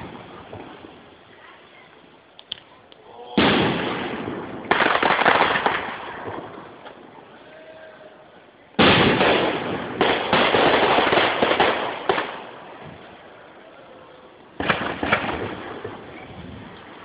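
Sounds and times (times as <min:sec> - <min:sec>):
firework crackling: 0:00.0 - 0:17.0
firework shells bursting: 0:02.3 - 0:07.1, 0:08.8 - 0:13.4, 0:14.6 - 0:17.0
sharp firework pops: 0:03.4 - 0:07.0, 0:08.8 - 0:13.1, 0:14.6 - 0:16.9.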